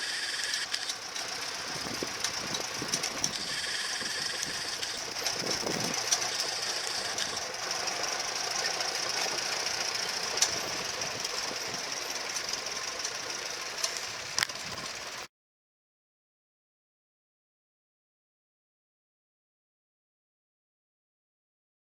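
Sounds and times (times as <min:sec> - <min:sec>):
sharp clicks: 0:00.0 - 0:14.9
tractor engine running: 0:00.0 - 0:15.3.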